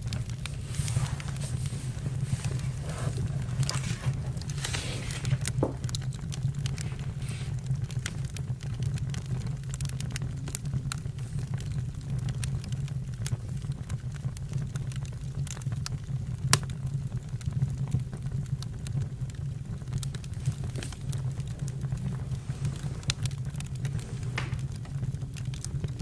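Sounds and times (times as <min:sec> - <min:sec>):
campfire crackles and pops: 0:00.0 - 0:26.0
campfire low rumble: 0:00.0 - 0:26.0.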